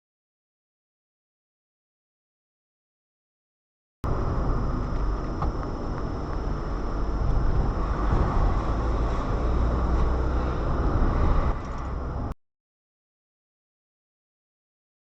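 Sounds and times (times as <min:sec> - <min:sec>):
road noise: 0:04.0 - 0:12.4
vehicle engine rumble: 0:04.0 - 0:12.4.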